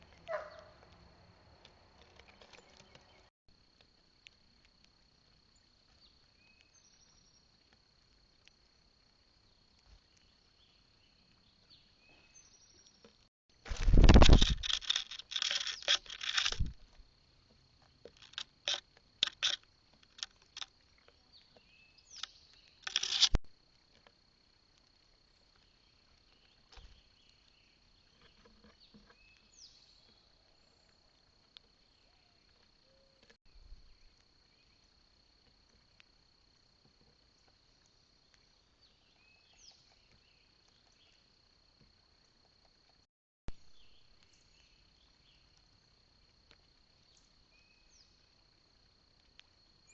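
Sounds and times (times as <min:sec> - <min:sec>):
birds scratching and clattering: 0:13.7 - 0:16.7, 0:18.1 - 0:20.7, 0:22.2 - 0:23.4.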